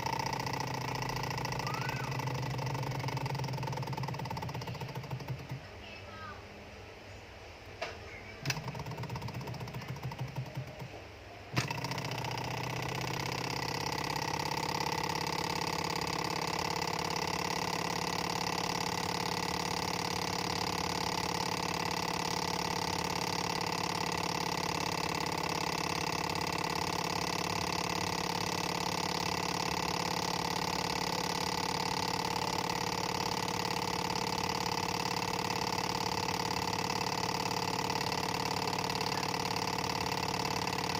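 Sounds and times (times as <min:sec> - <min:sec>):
clicks and rattle: 0:00.0 - 0:05.7, 0:07.8 - 0:11.0.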